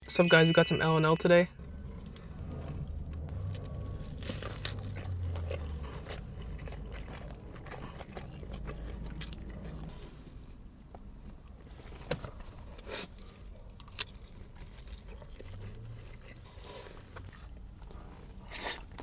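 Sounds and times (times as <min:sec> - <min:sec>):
person biting and chewing food: 0:03.5 - 0:10.0.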